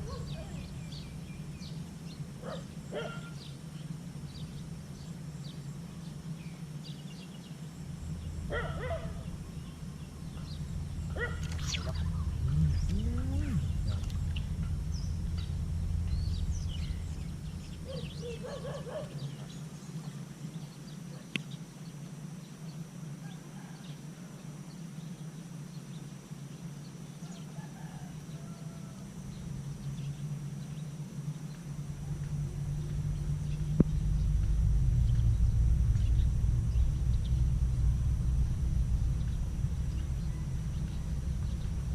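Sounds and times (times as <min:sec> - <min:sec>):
low rumble: 0:00.0 - 0:20.6, 0:29.0 - 0:41.9
birds chirping: 0:00.0 - 0:22.6, 0:27.0 - 0:41.9.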